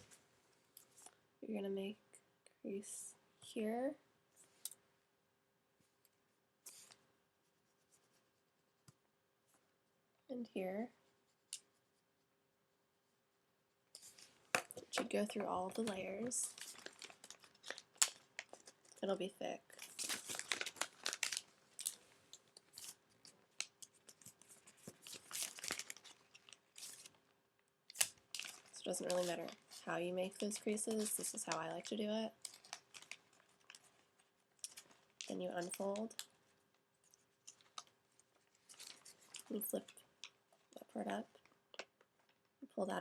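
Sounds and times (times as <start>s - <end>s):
paper rustling and crinkling: 14.0s - 19.0s, 19.7s - 27.2s, 27.9s - 36.3s, 37.0s - 40.0s.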